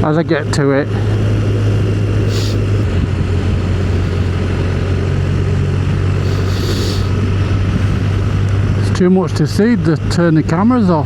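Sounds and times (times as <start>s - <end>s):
motorcycle engine cruising: 0.0s - 11.0s
wind noise: 1.1s - 8.8s
rush of hiss: 2.3s - 2.7s, 6.2s - 7.1s.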